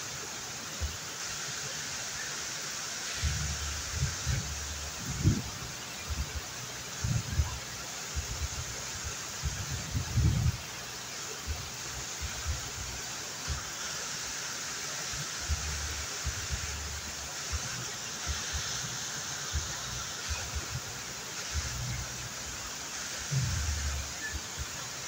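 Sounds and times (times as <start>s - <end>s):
waterfall rushing: 0.0s - 25.0s
short low thumps: 23.3s - 24.1s.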